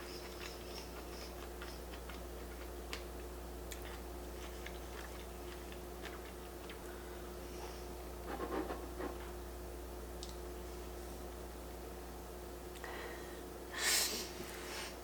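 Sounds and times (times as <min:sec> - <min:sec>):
close-miked chewing: 0:00.0 - 0:06.9
faint steady hum: 0:00.0 - 0:15.0.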